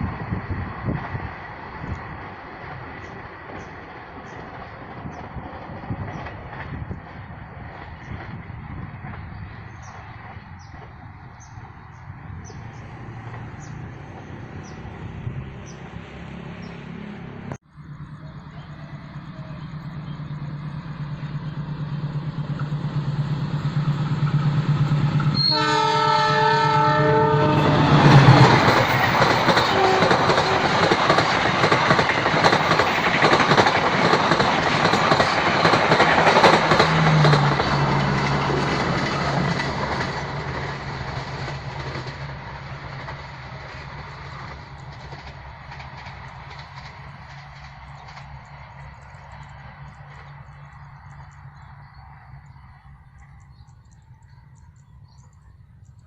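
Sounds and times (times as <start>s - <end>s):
diesel train engine hum: 0.0s - 56.0s
train wheels rattling: 17.8s - 56.0s
train horn: 25.3s - 28.5s, 29.5s - 31.0s.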